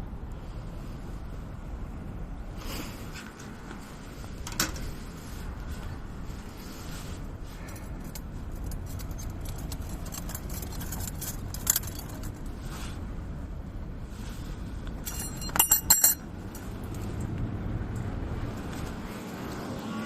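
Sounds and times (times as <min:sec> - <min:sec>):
steady low rumble: 0:00.0 - 0:19.9
metal objects clinking: 0:15.0 - 0:16.2.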